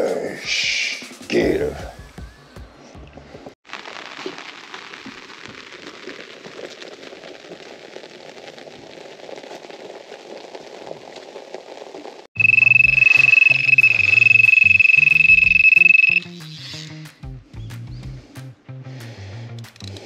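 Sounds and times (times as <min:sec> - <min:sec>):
steady rain falling: 0:03.6 - 0:16.2.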